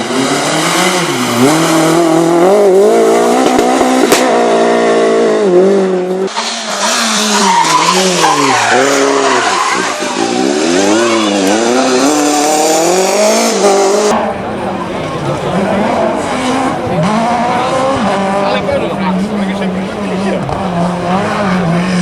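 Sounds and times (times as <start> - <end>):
rally car engine revving: 0.0 - 22.0
tyres skidding and squealing: 6.1 - 22.0.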